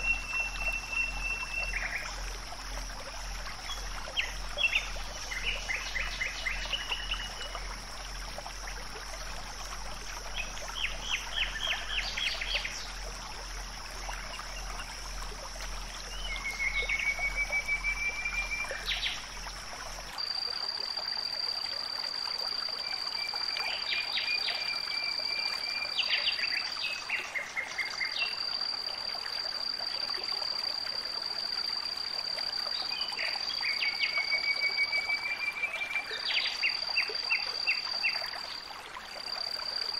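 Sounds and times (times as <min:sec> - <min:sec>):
high-pitched insect drone: 0:00.0 - 0:21.9.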